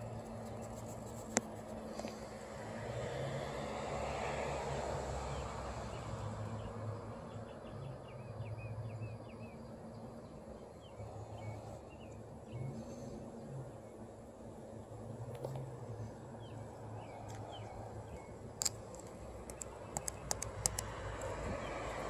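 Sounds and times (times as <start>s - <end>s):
small bird chirping: 16.4s - 22.0s.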